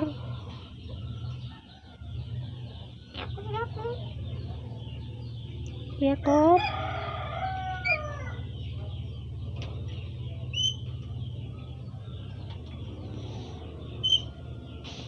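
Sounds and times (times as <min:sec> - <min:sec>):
cockatoo chirps: 0:10.5 - 0:11.0, 0:14.0 - 0:14.3.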